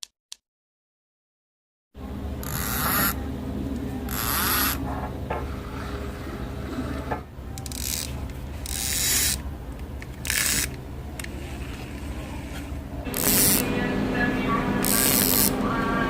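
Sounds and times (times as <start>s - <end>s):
fishing reel drag clicking: 4.1s - 4.8s, 7.6s - 9.4s, 10.2s - 10.8s, 13.2s - 13.6s.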